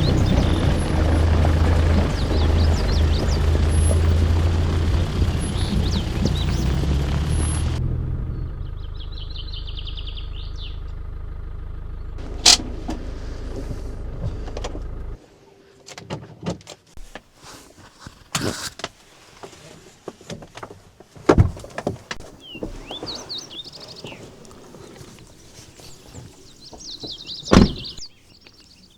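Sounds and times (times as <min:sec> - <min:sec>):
birds chirping: 0:00.0 - 0:15.2, 0:22.2 - 0:28.9
engine idling with low hum: 0:00.0 - 0:15.2.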